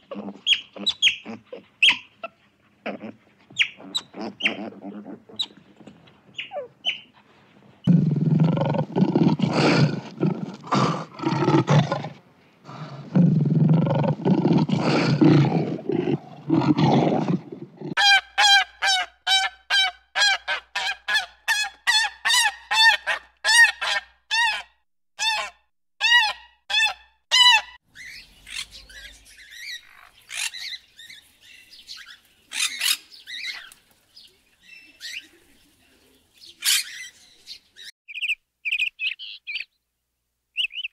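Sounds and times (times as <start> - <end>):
small birds chirping: 0.0 - 2.6, 3.4 - 4.7, 5.3 - 7.1, 27.9 - 39.9, 40.5 - 40.9.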